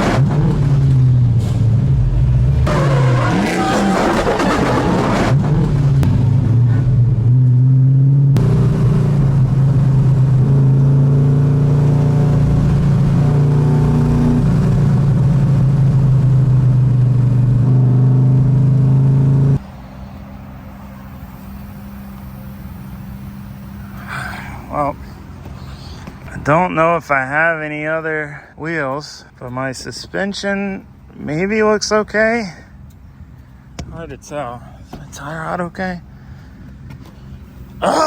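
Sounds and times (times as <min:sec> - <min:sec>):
car engine running loud: 0:00.0 - 0:26.4
low hum: 0:00.0 - 0:26.4.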